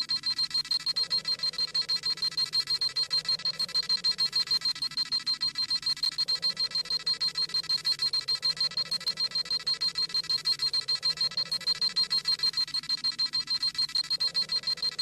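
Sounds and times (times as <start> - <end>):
rapid high electronic beeps: 0.0 - 15.0.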